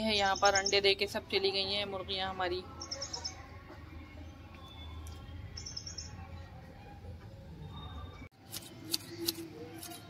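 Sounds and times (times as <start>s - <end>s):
birds chirping: 0.0s - 1.2s, 2.7s - 6.6s.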